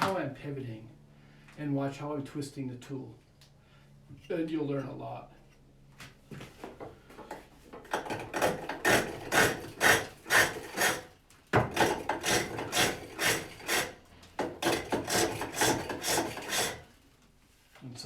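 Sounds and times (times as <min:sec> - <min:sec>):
hook tool rasping wood on lathe: 0:07.9 - 0:16.9.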